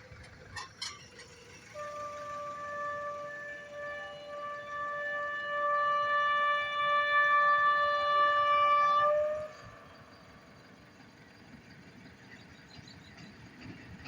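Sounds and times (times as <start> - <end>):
locomotive horn blast: 1.0 - 10.8.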